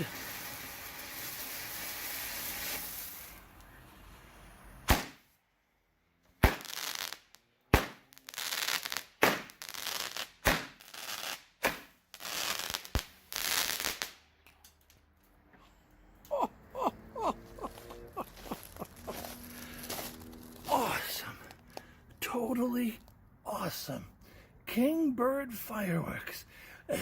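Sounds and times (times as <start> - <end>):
firework hissing: 0.0 - 5.2, 6.4 - 14.2
firework crackling: 0.0 - 5.3, 6.4 - 14.4, 17.6 - 21.6
sharp firework shots: 4.8 - 5.3, 6.4 - 14.2.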